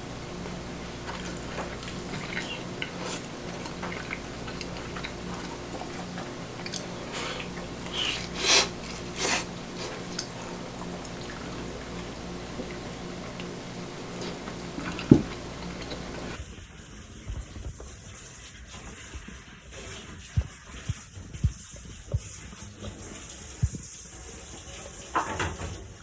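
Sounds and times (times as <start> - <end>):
clattering or splashing: 0.0 - 16.4
low steady hum: 0.0 - 16.4.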